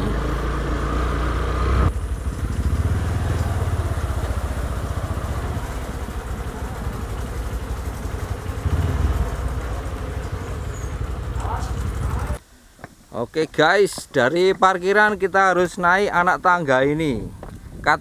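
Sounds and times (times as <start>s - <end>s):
motorcycle engine low rumble: 0.0s - 12.4s.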